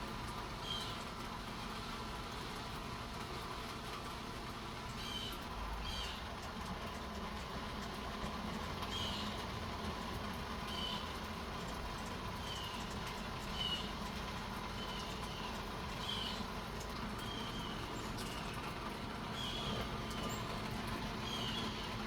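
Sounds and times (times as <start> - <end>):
light rain: 0.0 - 22.0
electric fan humming: 4.8 - 22.0
hummingbirds chirping: 4.9 - 6.2, 8.9 - 9.4, 10.6 - 22.0.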